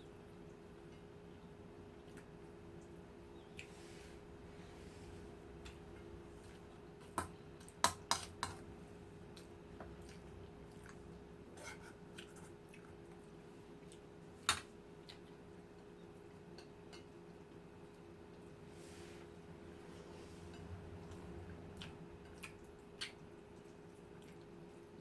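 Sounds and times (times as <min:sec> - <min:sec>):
faint steady hum: 0:00.0 - 0:25.0
person chewing: 0:09.3 - 0:11.2, 0:12.1 - 0:14.1, 0:21.0 - 0:24.9.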